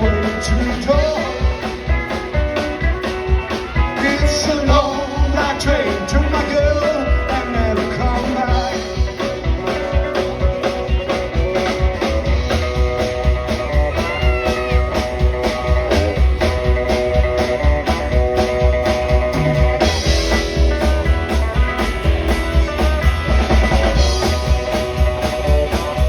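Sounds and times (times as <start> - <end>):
person singing: 0.0 - 1.8, 3.8 - 9.1
drums playing a beat: 0.0 - 26.0
electric guitar: 0.0 - 26.0.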